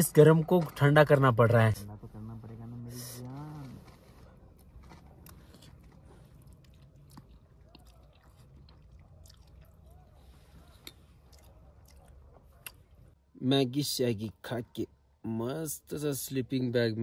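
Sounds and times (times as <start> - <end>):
person chewing noodles: 3.2 - 13.2.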